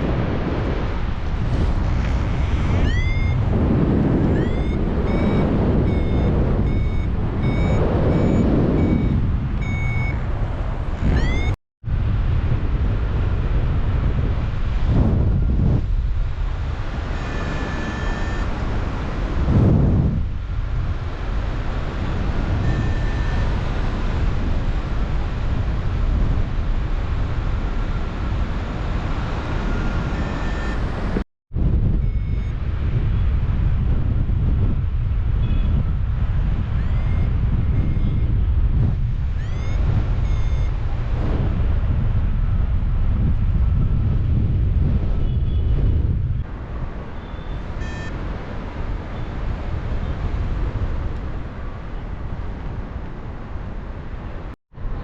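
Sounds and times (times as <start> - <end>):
wind on microphone: 0.0 - 55.0
variometer beeping: 2.4 - 3.5, 4.2 - 10.4, 11.0 - 11.6, 17.1 - 18.6, 22.2 - 23.8, 29.4 - 31.2, 32.0 - 32.6, 36.8 - 38.4, 39.3 - 41.6, 47.3 - 48.4.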